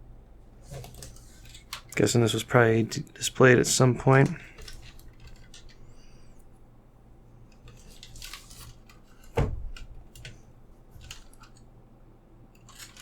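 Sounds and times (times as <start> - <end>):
soft rustles and small clicks: 4.1 - 11.8.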